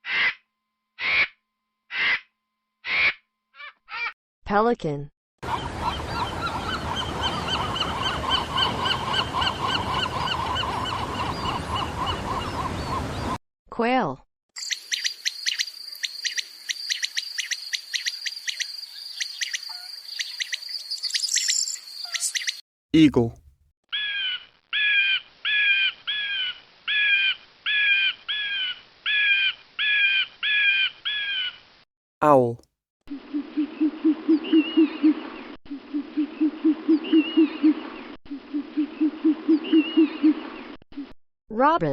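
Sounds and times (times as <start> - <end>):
eagle calling: 19.2 - 23.4.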